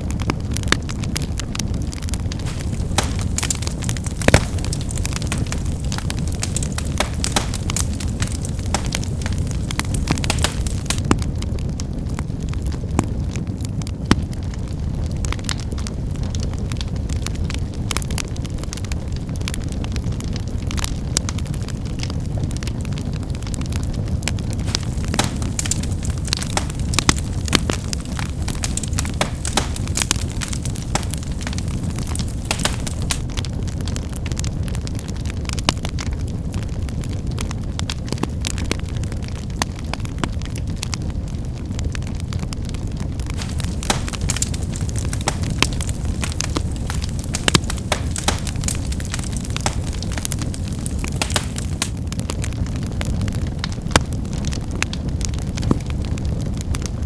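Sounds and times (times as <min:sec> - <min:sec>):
firewood crackling and popping: 0:00.0 - 0:57.0
roar of flames: 0:00.5 - 0:13.9, 0:22.6 - 0:34.5, 0:42.6 - 0:56.9.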